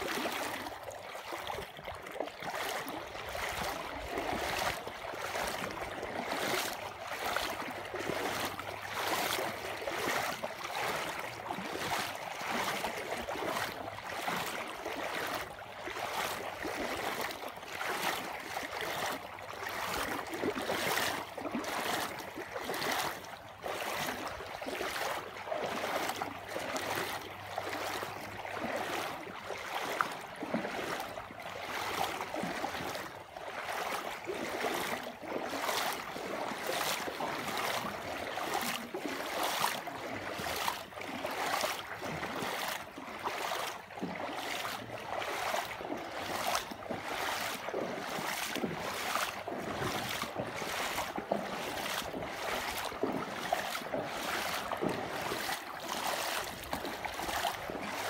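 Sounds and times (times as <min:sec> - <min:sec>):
rushing water surging: 0:00.0 - 0:58.0.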